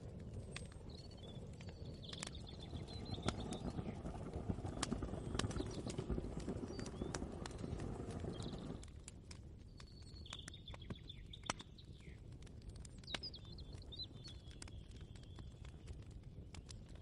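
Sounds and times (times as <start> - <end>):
low background rumble: 0.0 - 8.9
small birds chirping: 0.2 - 8.8, 9.6 - 17.0.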